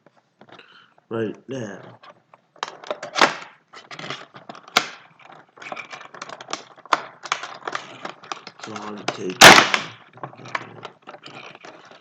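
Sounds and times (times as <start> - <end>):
box opening clicks and crinkles: 1.9 - 12.0
sharp plastic snaps: 4.6 - 5.2, 6.1 - 10.1.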